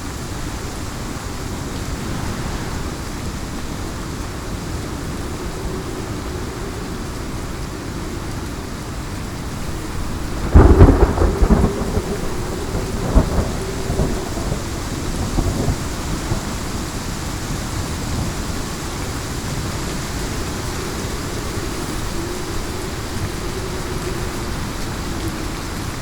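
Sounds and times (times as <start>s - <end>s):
heavy rain falling: 0.0s - 26.0s
thunderclap rumbling: 1.1s - 5.1s, 9.4s - 16.6s.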